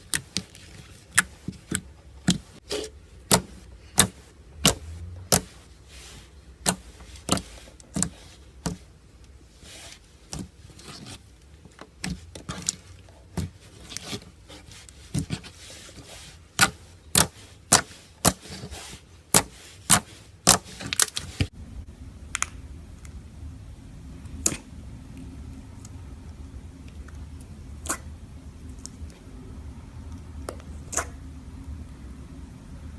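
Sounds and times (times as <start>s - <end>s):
low hum: 21.5s - 32.9s.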